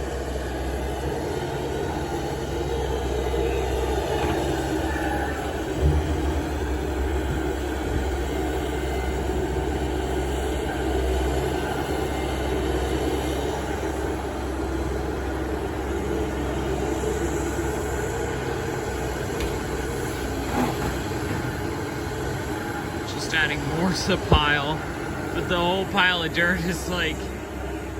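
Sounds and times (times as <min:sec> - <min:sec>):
heavy diesel engines running: 0:00.0 - 0:27.9.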